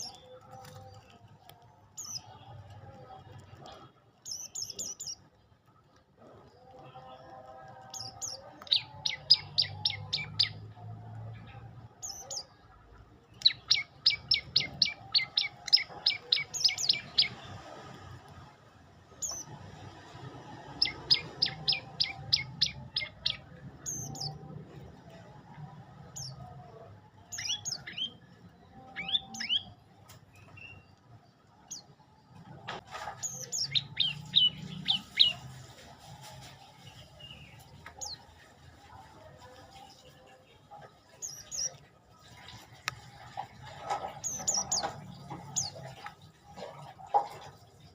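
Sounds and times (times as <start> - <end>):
bird singing rapid high notes: 8.0 - 10.6.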